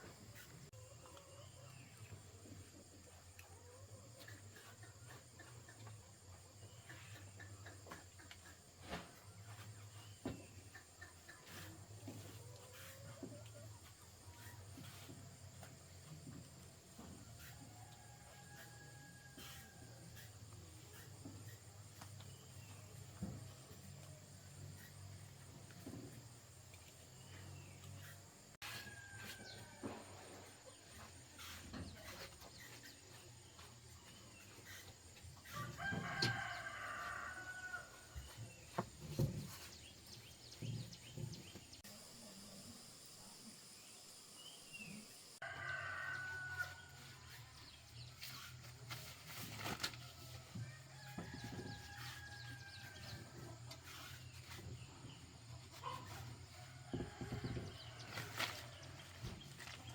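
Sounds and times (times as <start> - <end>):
faint rooster crowing: 17.0 - 21.6, 27.6 - 38.7, 45.4 - 48.5, 50.0 - 59.9.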